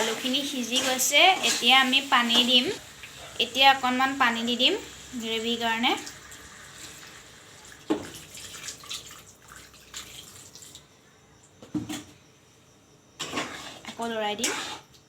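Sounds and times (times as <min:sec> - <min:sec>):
water poured into frying pan: 0:04.9 - 0:10.8.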